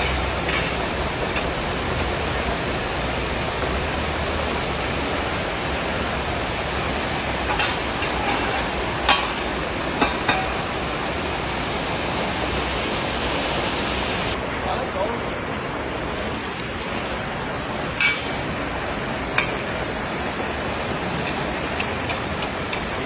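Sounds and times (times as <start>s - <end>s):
carrot sizzling in hot oil: 0.0s - 4.5s, 7.0s - 11.5s, 17.9s - 23.0s.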